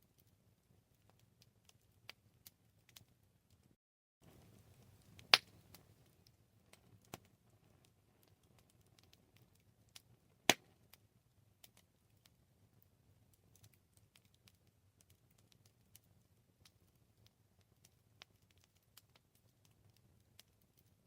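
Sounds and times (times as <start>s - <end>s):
campfire crackling: 0.1s - 21.0s.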